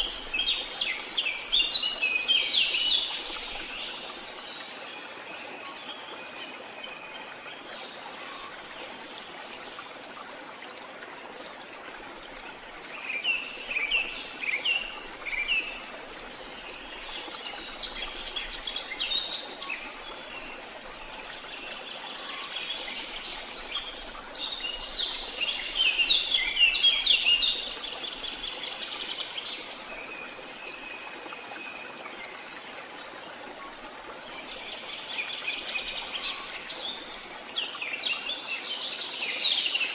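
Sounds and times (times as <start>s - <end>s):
steady outdoor hiss: 0.0s - 39.9s.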